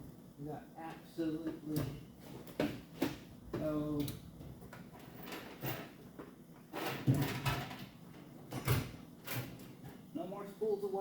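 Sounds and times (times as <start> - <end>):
man talking: 10.2 - 11.0.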